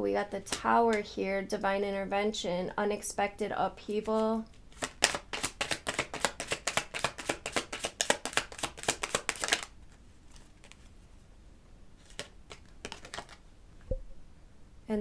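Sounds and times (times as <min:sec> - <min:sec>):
cards being shuffled by hand: 0:03.9 - 0:11.0, 0:12.0 - 0:13.5.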